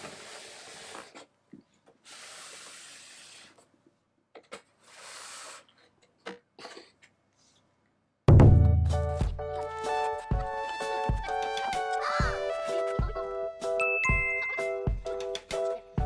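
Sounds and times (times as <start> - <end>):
loud music: 8.3 - 9.6.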